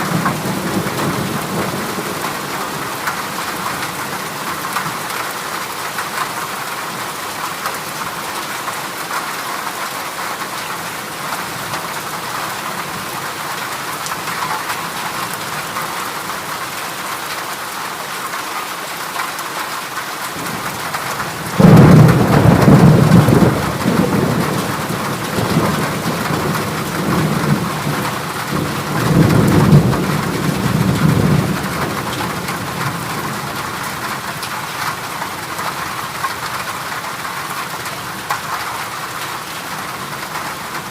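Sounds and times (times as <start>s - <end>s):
heavy rain on a metal roof: 0.0s - 40.9s
thunder clap and rumble: 20.4s - 34.9s.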